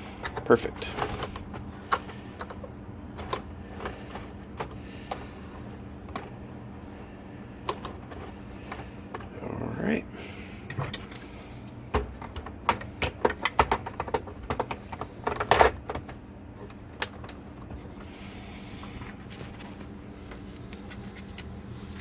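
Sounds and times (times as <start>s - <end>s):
plastic parts clicking and knocking: 0.0s - 6.4s, 7.6s - 9.3s, 10.6s - 18.1s
steady low hum: 0.0s - 22.0s.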